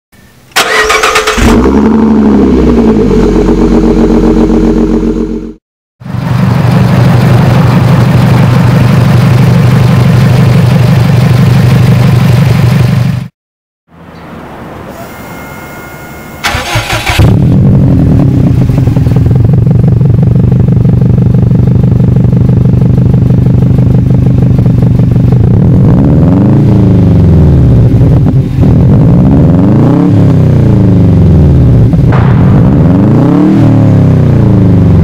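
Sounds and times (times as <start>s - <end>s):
car starter cranking: 0.6s - 1.8s, 16.4s - 17.4s
car engine idling: 0.6s - 5.5s, 6.1s - 13.2s, 14.8s - 29.2s
car engine revving: 0.6s - 5.6s, 16.4s - 35.0s.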